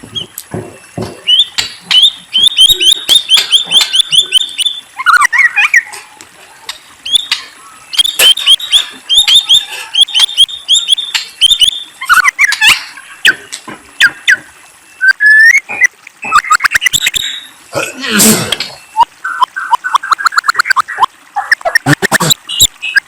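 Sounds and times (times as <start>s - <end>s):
bird chattering: 1.0s - 6.1s, 6.7s - 17.6s, 18.8s - 23.0s
songbird whistling rising notes: 1.2s - 5.9s, 7.0s - 17.6s
sharp clicks: 10.1s - 12.8s.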